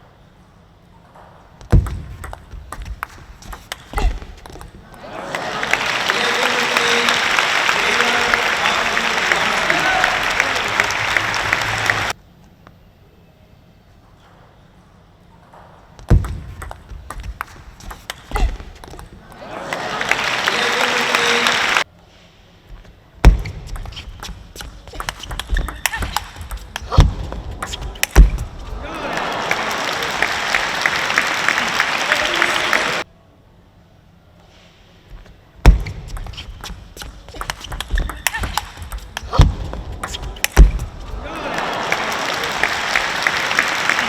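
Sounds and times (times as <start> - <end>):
crowd applause and cheering: 4.6 - 12.2, 17.4 - 21.8, 25.8 - 33.0, 37.4 - 44.0
table tennis ball clicks: 16.1 - 19.2, 23.7 - 27.0, 36.1 - 39.4
footsteps thudding on court floor: 23.2 - 28.7, 35.7 - 41.2
loud thump: 28.1 - 28.6.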